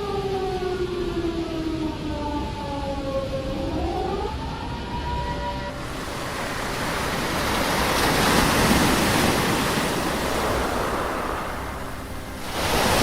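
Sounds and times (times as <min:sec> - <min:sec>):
rushing wind: 0:05.7 - 0:13.0
rushing water: 0:05.8 - 0:13.0.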